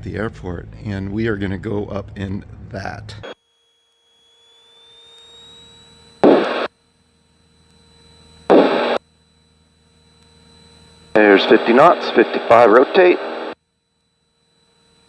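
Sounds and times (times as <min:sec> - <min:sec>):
light aircraft engine hum: 0:00.0 - 0:03.4, 0:05.0 - 0:13.6.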